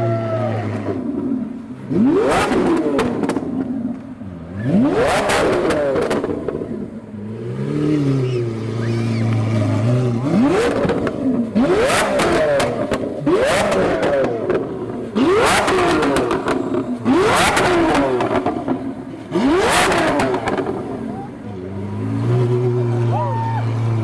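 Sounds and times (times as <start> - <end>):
sports car engine revving: 0.0 - 24.0
exhaust pops and bangs: 2.4 - 4.2, 10.5 - 21.0.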